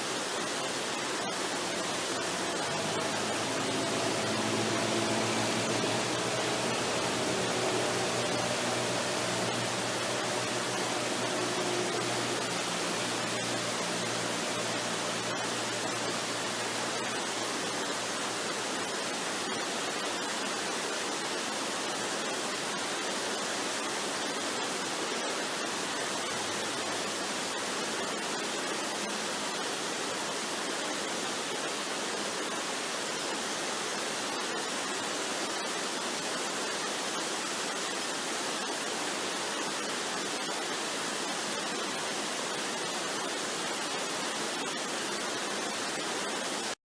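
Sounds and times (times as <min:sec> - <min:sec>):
waterfall rushing: 0:00.0 - 0:46.8
faint low tones: 0:01.4 - 0:17.2.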